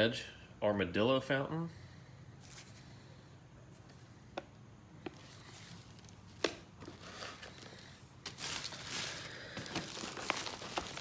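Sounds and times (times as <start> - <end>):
packages rustling: 2.4 - 3.0, 5.1 - 11.0.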